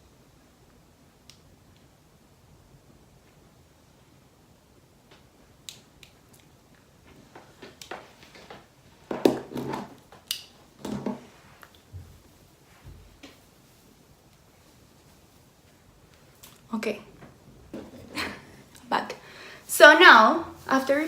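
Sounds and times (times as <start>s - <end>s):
soft handling rustles: 6.9s - 18.8s.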